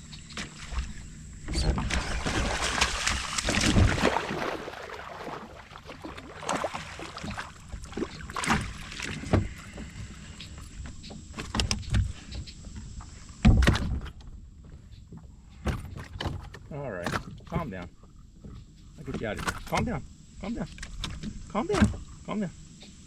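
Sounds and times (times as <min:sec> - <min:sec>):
gear clattering in a kayak: 0:06.4 - 0:20.0.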